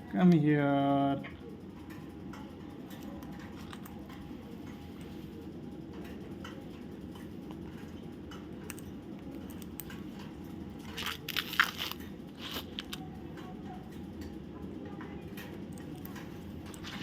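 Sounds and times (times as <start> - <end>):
steady low hum: 0.0 - 17.0
parrot cracking seeds: 10.8 - 13.0.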